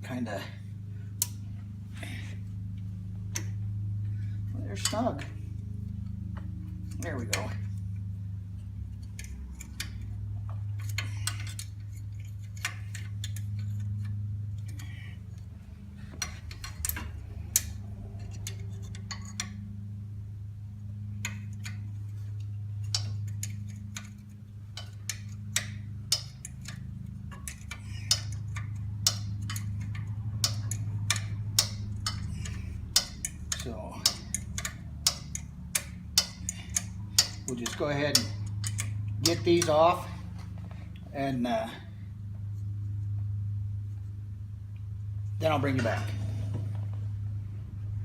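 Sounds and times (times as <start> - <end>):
steady low hum: 0.0 - 48.0
wrench clicking against metal: 24.8 - 39.8.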